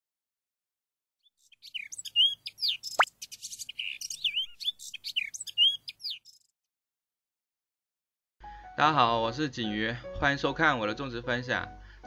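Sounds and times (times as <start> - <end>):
birds chirping: 1.2 - 6.5.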